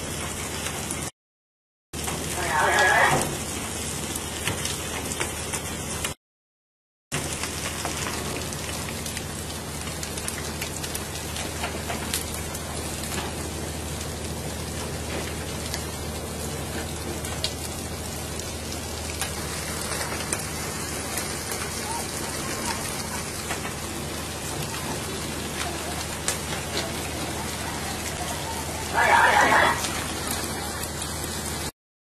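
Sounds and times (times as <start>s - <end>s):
rain patter on a surface: 0.0s - 1.1s, 2.0s - 6.2s, 7.1s - 31.7s.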